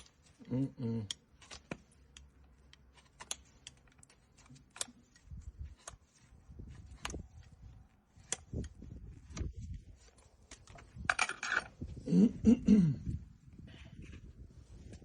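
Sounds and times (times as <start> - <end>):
hoof-trimming tools clicking and scraping: 1.0 - 11.9.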